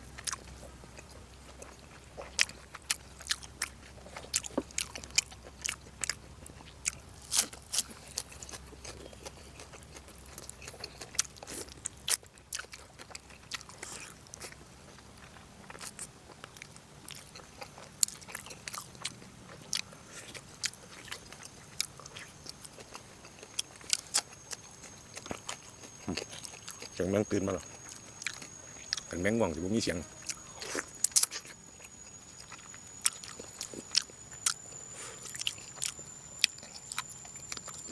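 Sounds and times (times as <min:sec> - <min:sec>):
close-up chewing: 0:00.0 - 0:37.9
high-pitched insect call: 0:19.8 - 0:37.9.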